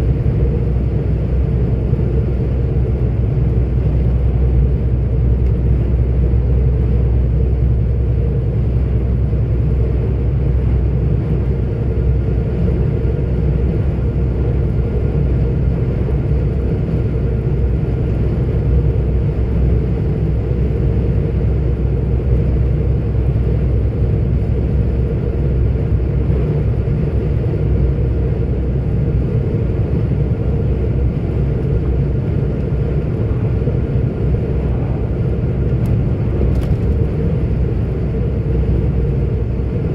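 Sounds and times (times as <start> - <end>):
faint steady whine: 0.0 - 39.9
road rumble: 0.0 - 39.9
truck engine drone: 0.0 - 39.9.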